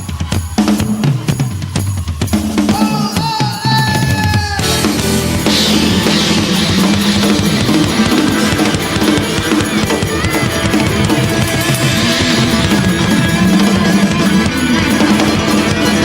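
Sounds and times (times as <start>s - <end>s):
drum kit: 0.0s - 16.0s
electric guitar playing: 4.6s - 16.0s.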